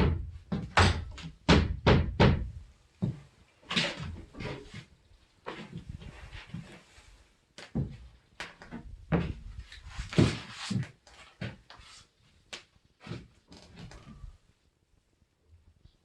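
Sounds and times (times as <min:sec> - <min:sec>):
door frame knocks and bumps: 0:00.0 - 0:02.6.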